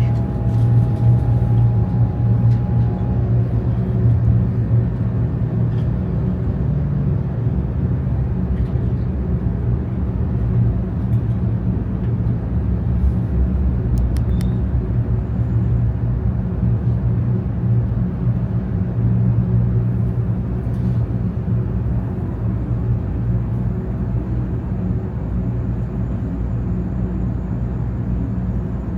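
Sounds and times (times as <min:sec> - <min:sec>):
faint high tone: 0:00.0 - 0:03.6
train running rumble: 0:00.0 - 0:28.9.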